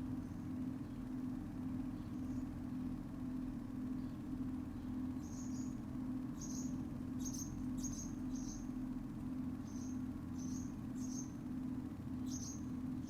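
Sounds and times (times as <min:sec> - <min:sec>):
pulsing mechanical hum: 0:00.0 - 0:13.0
small bird chirping: 0:04.0 - 0:08.8, 0:09.6 - 0:11.4, 0:12.2 - 0:13.0.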